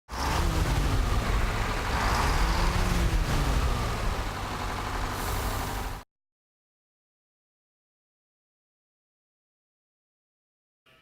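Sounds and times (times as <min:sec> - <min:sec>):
truck engine running: 0:00.1 - 0:06.0.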